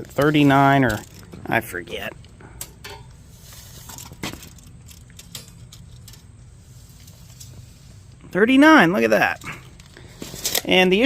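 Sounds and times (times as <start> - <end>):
metallic rattles: 0.0 - 8.0
low steady hum: 0.0 - 11.0.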